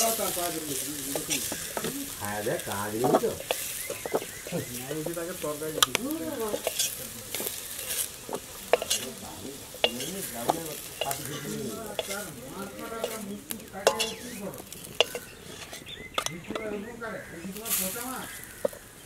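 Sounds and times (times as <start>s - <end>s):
potatoes sizzling in oil: 0.0s - 19.0s
spatula clinking against pot: 3.0s - 16.8s.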